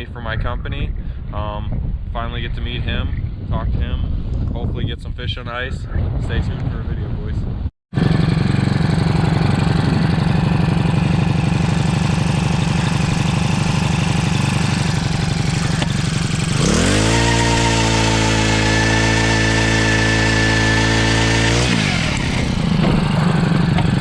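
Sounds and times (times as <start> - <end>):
vehicle engine running: 8.0 - 24.0.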